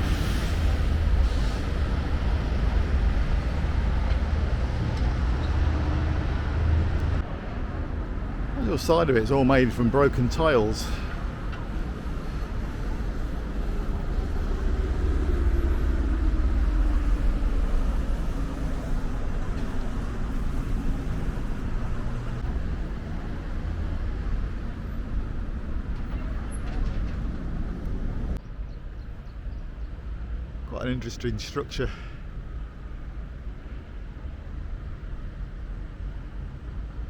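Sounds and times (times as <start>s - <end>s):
vehicle engine passing by: 0.0s - 7.2s, 12.3s - 28.3s
low traffic rumble: 0.0s - 37.0s.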